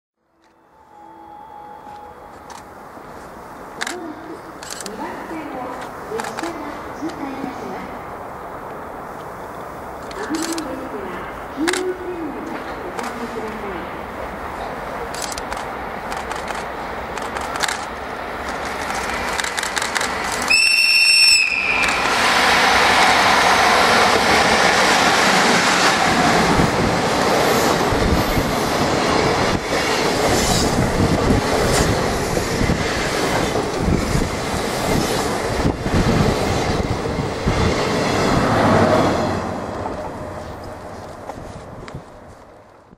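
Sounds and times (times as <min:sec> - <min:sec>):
train wheels rumbling on rails: 0:02.3 - 0:42.9
locomotive whistle: 0:20.5 - 0:22.1.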